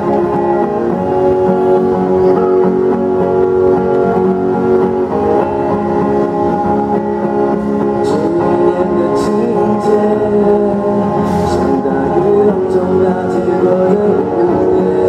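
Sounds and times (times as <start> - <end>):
band playing pop ballad: 0.0 - 15.0
guitar: 0.0 - 15.0.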